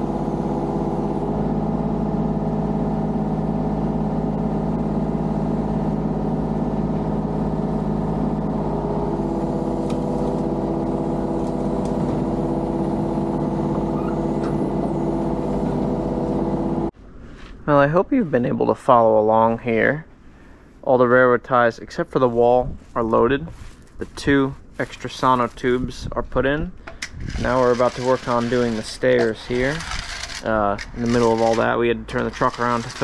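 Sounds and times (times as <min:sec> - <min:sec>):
engine running steadily: 0:00.0 - 0:16.9, 0:26.8 - 0:33.0.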